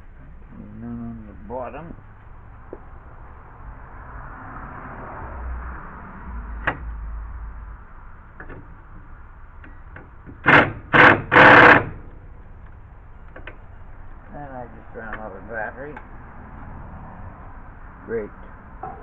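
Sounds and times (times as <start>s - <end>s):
cordless drill running: 10.4s - 11.9s.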